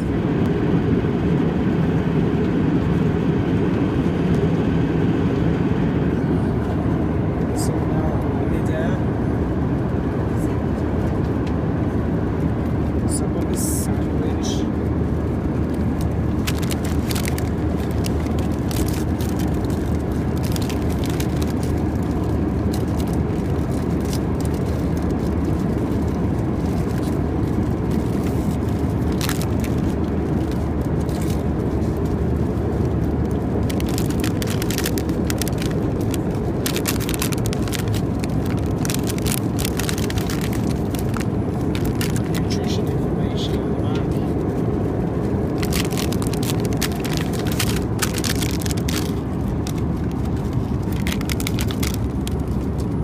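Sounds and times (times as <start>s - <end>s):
airplane cabin roar: 0.0s - 53.0s
packaging crinkling: 15.2s - 42.7s, 44.3s - 53.0s.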